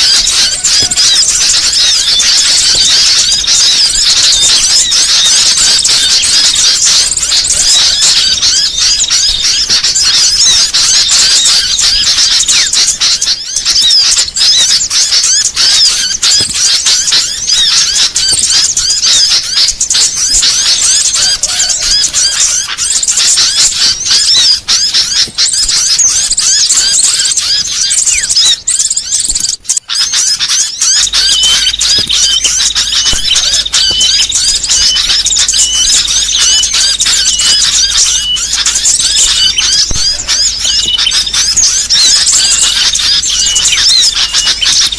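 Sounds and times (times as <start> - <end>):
songbirds chirping and trilling: 0.0 - 44.9.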